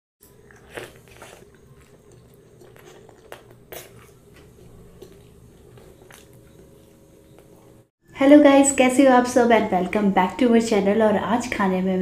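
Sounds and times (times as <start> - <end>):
crunchy bite: 0.2 - 7.5
person chewing: 0.2 - 7.8.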